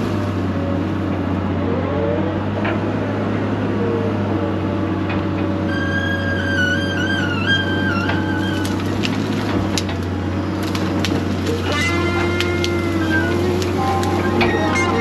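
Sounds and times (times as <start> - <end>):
heavy machine engine running: 0.0 - 15.0
music: 11.7 - 15.0.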